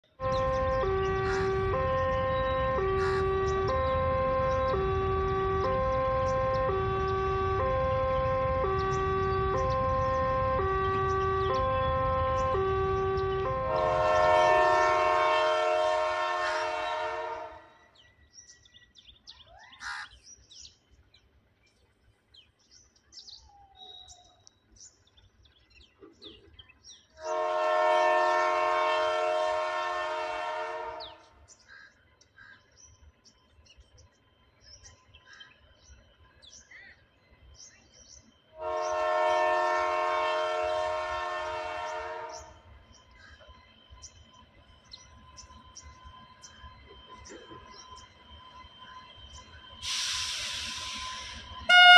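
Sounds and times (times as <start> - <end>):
train air horn blasts: 0.1 - 17.8, 27.2 - 31.4, 38.5 - 43.4, 49.6 - 51.9
faint bird chirps: 17.8 - 27.1.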